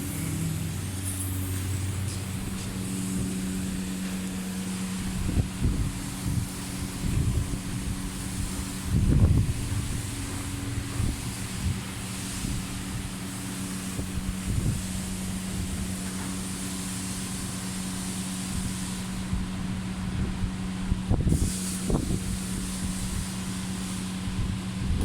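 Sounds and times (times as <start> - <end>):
engine humming: 0.0 - 11.9
wind noise on microphone: 0.0 - 13.2, 13.8 - 16.0, 18.5 - 25.0.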